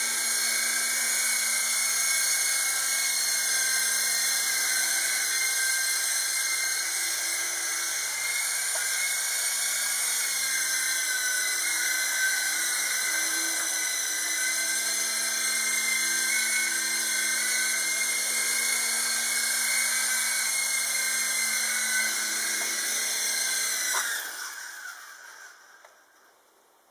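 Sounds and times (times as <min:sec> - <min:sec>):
toy helicopter rotors whining: 0:00.0 - 0:26.3.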